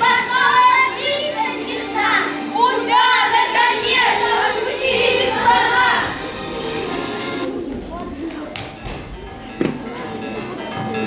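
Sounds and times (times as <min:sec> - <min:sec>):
children's high voices: 0:00.0 - 0:08.6
background music: 0:00.0 - 0:11.0.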